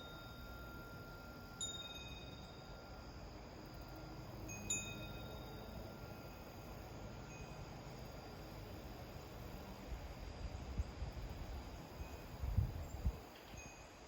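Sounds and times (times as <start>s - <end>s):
wind chime notes: 0.0s - 7.6s
steady thin high tone: 0.0s - 8.5s
low rumbling wind gusts: 9.4s - 13.3s.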